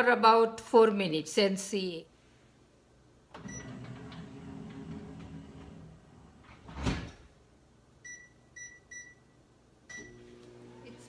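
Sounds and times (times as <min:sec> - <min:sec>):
microwave oven humming: 0:03.4 - 0:06.7, 0:09.9 - 0:11.0.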